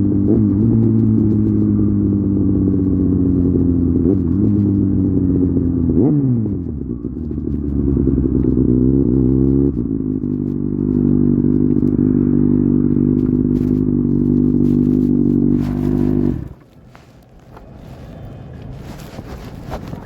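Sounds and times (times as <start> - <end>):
motorcycle engine running hard: 0.0 - 16.7
wind noise: 9.0 - 20.0.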